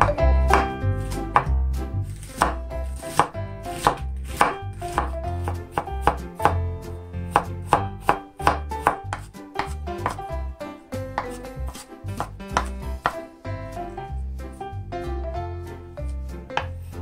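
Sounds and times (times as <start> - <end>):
knife chopping on wooden board: 0.0 - 6.6, 7.3 - 10.3, 11.1 - 13.3, 16.5 - 17.0.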